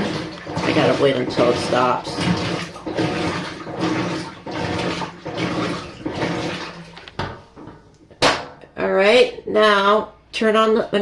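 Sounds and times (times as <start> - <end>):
washing machine motor hum: 0.0 - 8.6
water sloshing in drum: 0.0 - 8.6.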